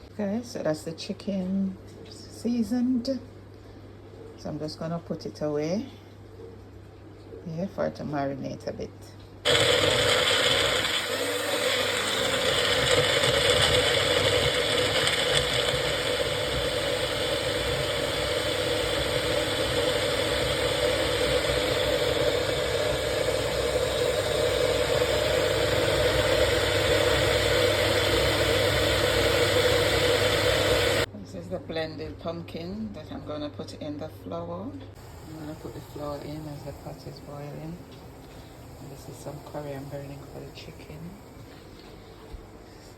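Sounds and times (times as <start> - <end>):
blender motor running: 9.5 - 31.1.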